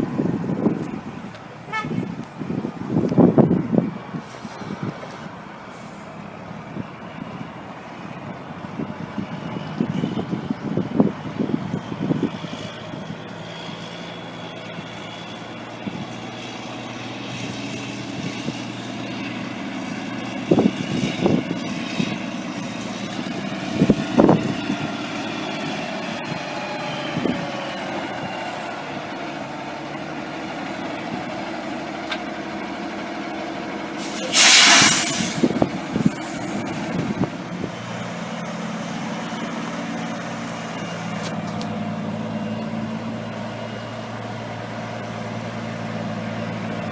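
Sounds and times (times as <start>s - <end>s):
diesel truck engine idling: 0.0s - 46.9s
air brakes hissing: 5.7s - 6.2s, 34.0s - 35.6s.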